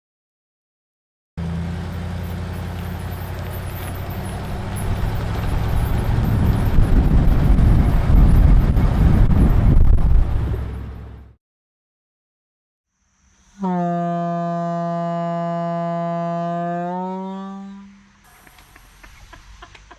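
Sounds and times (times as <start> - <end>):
vehicle engine running: 1.4 - 11.4.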